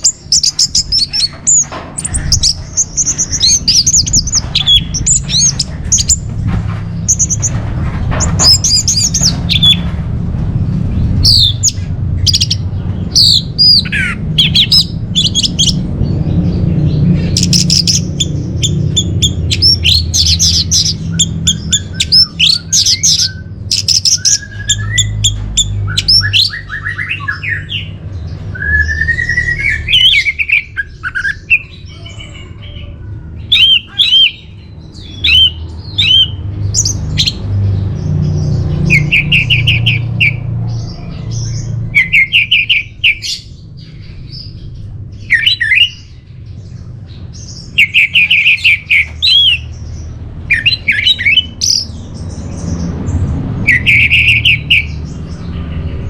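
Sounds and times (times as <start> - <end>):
thrush singing whistled phrases: 28.5 - 31.6, 35.2 - 36.4.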